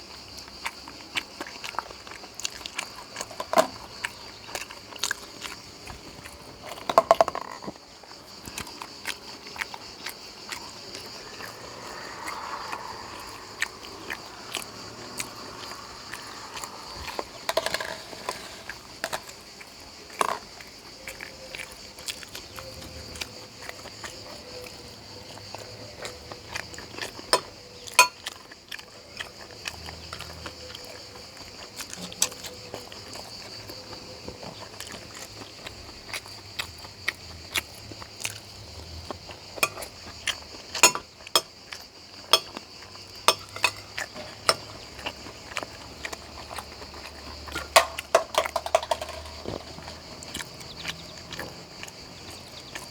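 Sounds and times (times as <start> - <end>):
soft chewing with mouth clicks: 0.0 - 47.8, 49.4 - 52.9
utensil clicking on dish: 28.0 - 28.3, 40.8 - 41.5, 42.3 - 42.6, 43.3 - 44.8.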